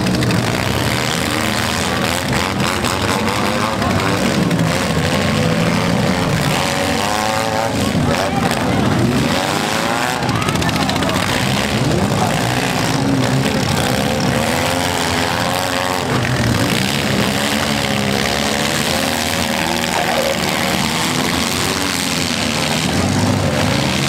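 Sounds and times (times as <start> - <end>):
car engines revving hard: 0.0 - 24.0.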